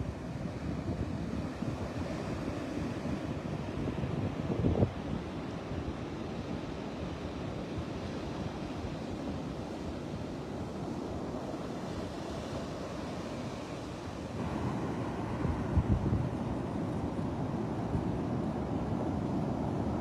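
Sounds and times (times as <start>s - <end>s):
surf washing onto beach: 0.0s - 20.0s
wind buffeting microphone: 8.4s - 20.0s.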